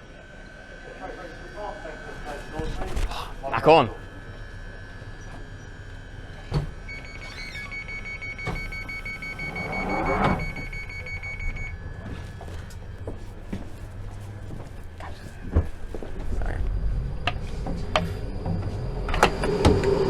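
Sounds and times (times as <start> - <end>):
thud: 2.4 - 3.5
rapid high beeping: 6.9 - 12.2.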